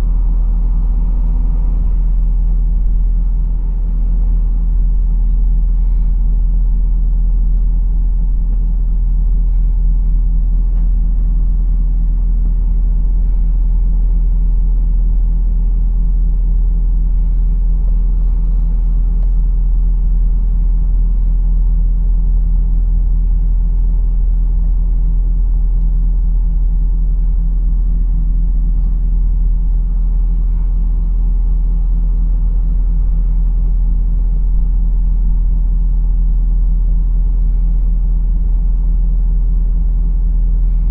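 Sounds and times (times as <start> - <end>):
road rumble: 0.0 - 23.2, 27.2 - 35.7
diesel engine running: 0.0 - 40.9.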